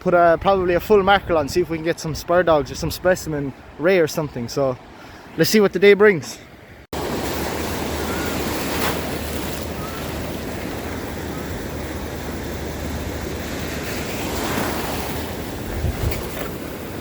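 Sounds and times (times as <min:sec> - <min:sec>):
sea surf washing on shore: 0:06.9 - 0:17.0
wind rumbling on microphone: 0:07.0 - 0:17.0.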